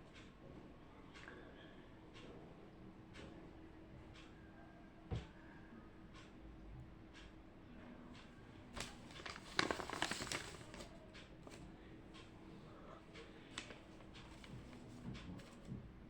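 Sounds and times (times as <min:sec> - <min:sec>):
objects rustling and clicking: 0:08.8 - 0:11.7, 0:13.5 - 0:15.9.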